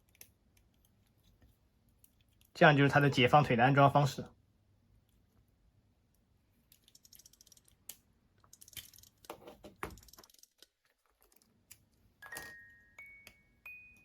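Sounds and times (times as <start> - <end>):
plastic parts clicking and rattling: 6.7 - 12.8
chiming tune: 12.2 - 14.0.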